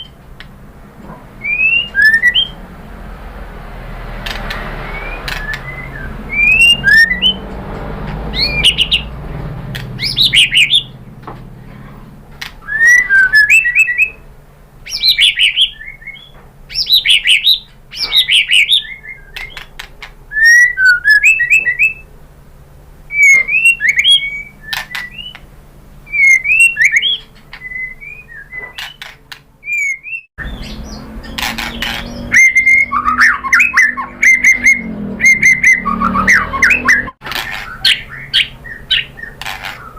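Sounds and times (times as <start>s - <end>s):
background hum: 0.0s - 35.3s
bird singing whistled notes: 1.4s - 2.6s, 4.5s - 9.2s, 10.0s - 11.0s, 12.6s - 19.7s, 20.3s - 22.1s, 23.1s - 25.4s, 26.1s - 39.9s.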